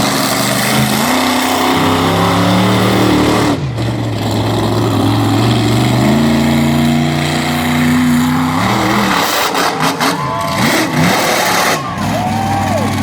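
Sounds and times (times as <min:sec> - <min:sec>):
monster truck engine revving: 0:00.0 - 0:13.0.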